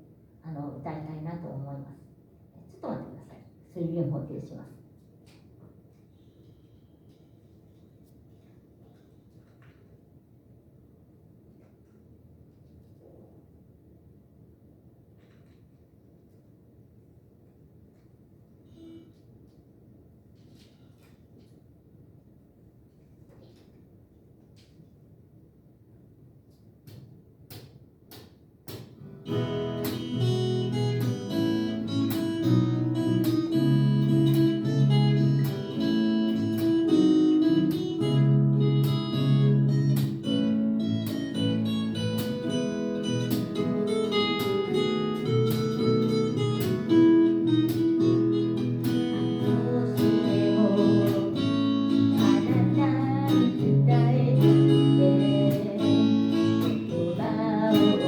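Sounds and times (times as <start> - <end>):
acoustic guitar playing: 29.0 - 58.0.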